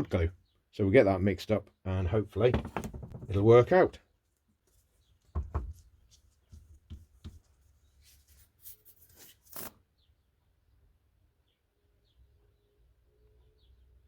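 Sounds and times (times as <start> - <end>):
small objects knocking on workbench: 2.5 - 3.4, 5.3 - 5.9.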